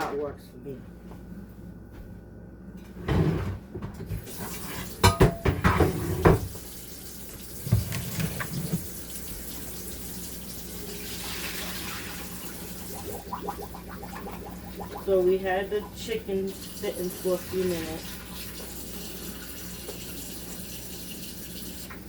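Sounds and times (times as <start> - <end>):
dishes clattering: 4.0 - 6.6
tap running into a sink: 4.1 - 9.6, 18.4 - 21.1, 21.7 - 22.0.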